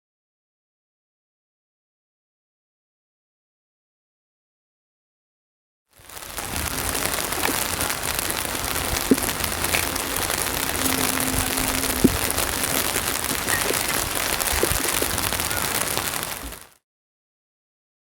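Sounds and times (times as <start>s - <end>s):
heavy rain: 6.0s - 16.8s
raindrop taps: 6.4s - 16.6s.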